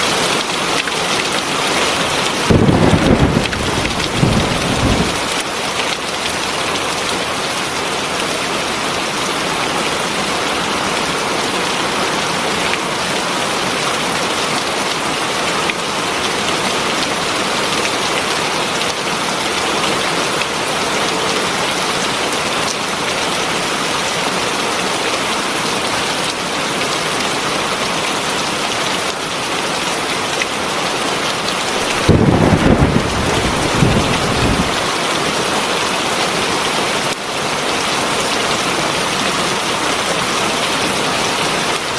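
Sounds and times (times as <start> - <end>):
heavy rain falling: 0.0 - 41.9
low rumble of thunder: 2.5 - 5.4, 31.8 - 34.8.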